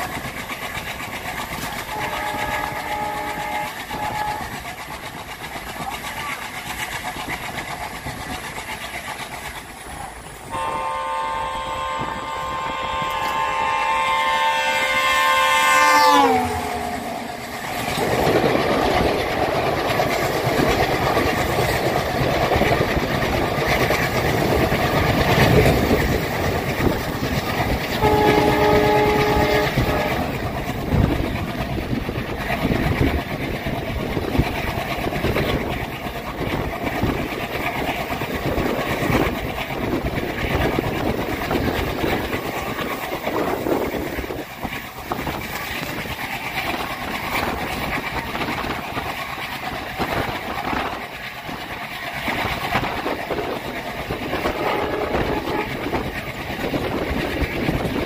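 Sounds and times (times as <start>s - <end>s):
train wheels rumbling on rails: 0.0s - 58.0s
train horn: 1.8s - 4.6s, 10.5s - 17.6s, 27.9s - 30.4s, 54.4s - 56.0s.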